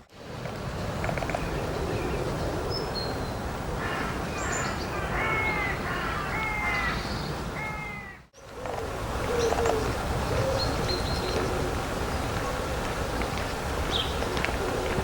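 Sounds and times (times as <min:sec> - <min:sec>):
outdoor background noise: 0:00.0 - 0:15.0
crow cawing: 0:03.8 - 0:07.0, 0:07.6 - 0:08.2.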